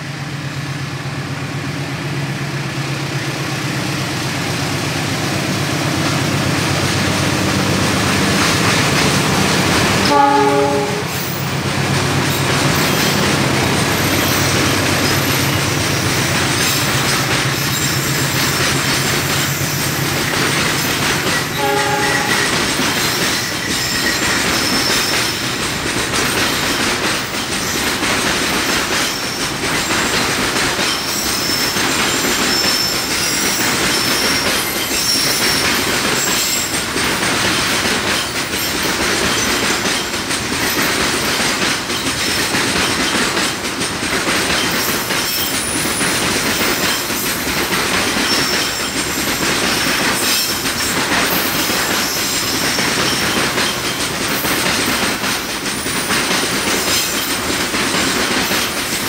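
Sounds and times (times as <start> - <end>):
rail joint clacks: 2.0 - 59.0.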